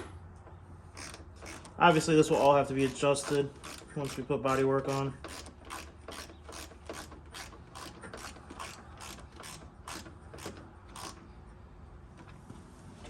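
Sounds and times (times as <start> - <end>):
ratchet clicking: 0.9 - 11.2.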